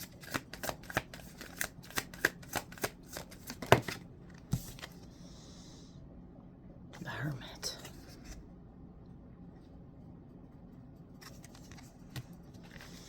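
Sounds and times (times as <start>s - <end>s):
cards being shuffled: 0.0s - 5.0s, 11.1s - 13.0s.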